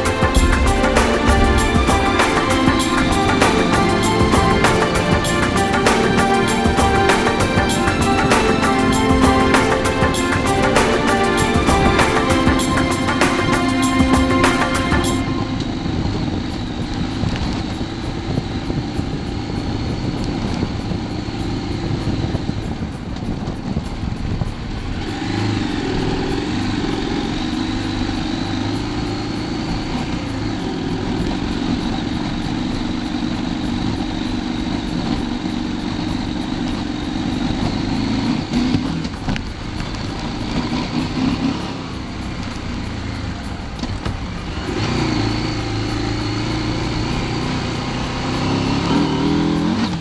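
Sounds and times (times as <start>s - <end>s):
road noise: 0.0s - 50.0s
wind noise on microphone: 14.2s - 50.0s.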